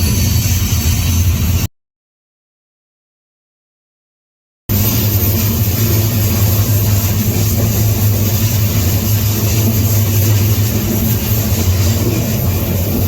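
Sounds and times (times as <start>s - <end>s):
freight train rumbling: 0.0s - 1.7s, 4.7s - 13.0s
rushing noise: 0.0s - 1.7s, 4.7s - 13.0s.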